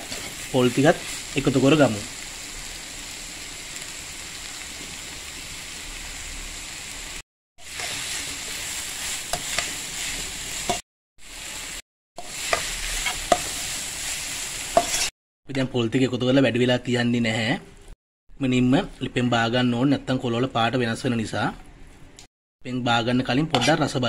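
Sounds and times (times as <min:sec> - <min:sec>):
metal spoon scraping a pan: 0:00.0 - 0:01.2, 0:07.7 - 0:08.4, 0:09.0 - 0:10.8, 0:12.2 - 0:13.8, 0:14.7 - 0:15.1
vegetables sizzling in oil: 0:00.0 - 0:15.1.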